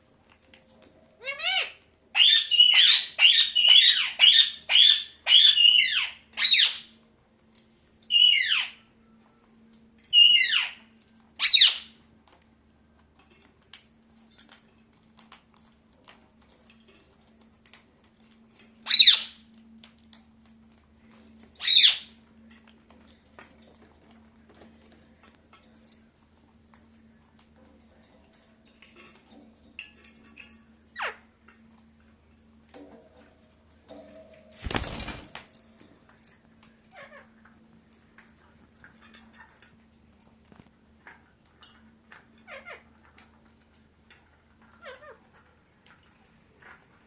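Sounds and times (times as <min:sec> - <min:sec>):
parakeet squawking: 0:01.2 - 0:06.9, 0:08.1 - 0:08.8, 0:10.1 - 0:10.8, 0:11.4 - 0:11.9, 0:18.9 - 0:19.4, 0:21.6 - 0:22.1.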